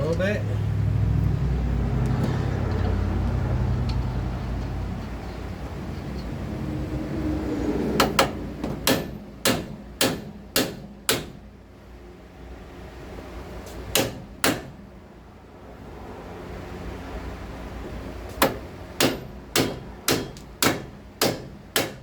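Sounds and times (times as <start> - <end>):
hammer striking metal: 8.0 - 11.4, 13.9 - 14.8, 18.4 - 22.0.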